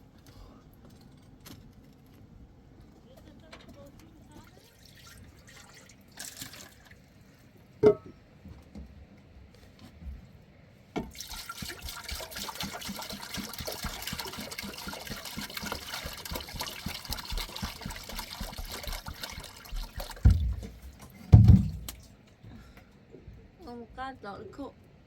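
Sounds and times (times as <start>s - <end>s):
water pouring and splashing: 4.3s - 7.3s, 11.0s - 22.2s
heavy low thuds: 20.2s - 22.0s.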